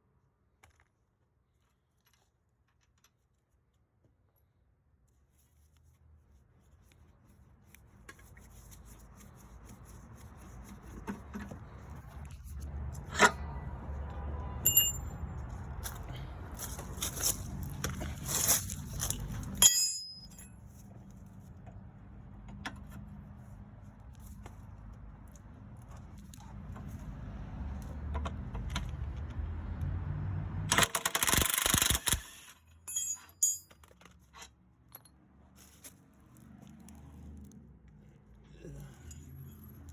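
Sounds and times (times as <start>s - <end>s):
sharp ringing metal clanks: 14.6s - 15.2s, 19.6s - 20.6s, 32.9s - 33.8s
metal tools clinking and scraping: 14.6s - 20.7s, 32.4s - 35.8s, 38.8s - 39.9s.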